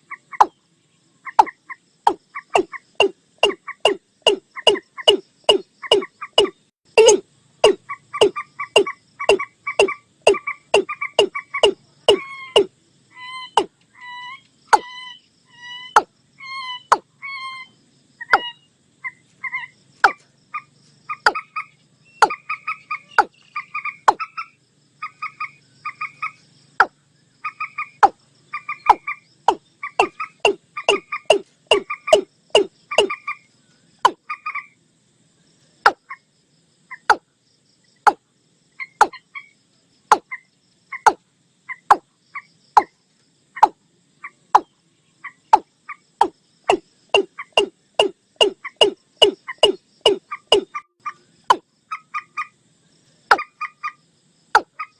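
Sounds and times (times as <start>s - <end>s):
sharp short bird calls: 1.2s - 34.7s
paired higher bird notes: 2.5s - 17.7s, 28.7s - 33.2s, 46.7s - 50.8s.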